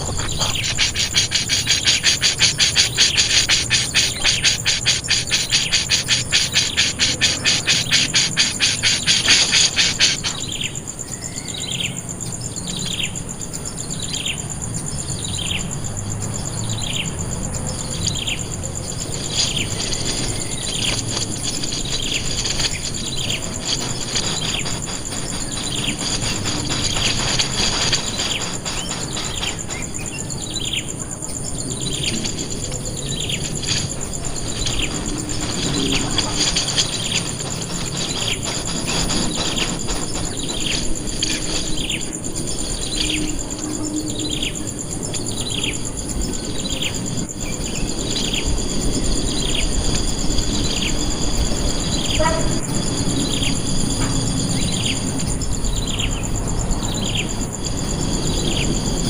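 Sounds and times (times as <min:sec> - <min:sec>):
bird calling with high notes: 0:00.0 - 0:10.6
insects buzzing: 0:00.0 - 0:59.0.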